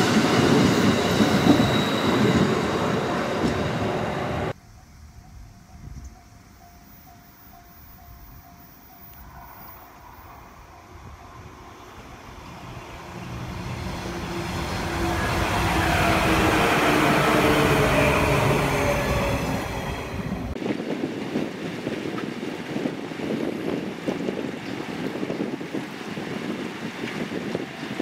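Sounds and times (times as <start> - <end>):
train wheels rumbling on rails: 0.0 - 4.6, 5.2 - 28.0
wind rustling on microphone: 0.0 - 28.0
train motor whine: 11.0 - 20.5.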